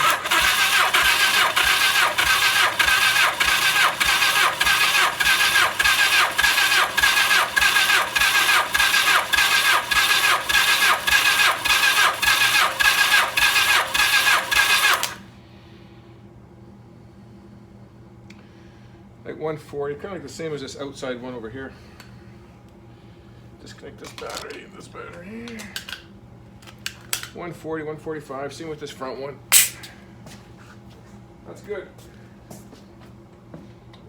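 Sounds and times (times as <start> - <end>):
starter motor cranking engine: 0.0 - 15.3.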